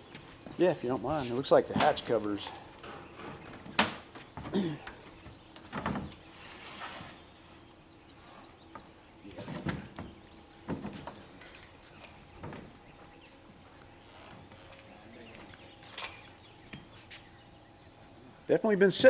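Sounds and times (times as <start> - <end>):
hatch sliding scrape: 6.4 - 7.2.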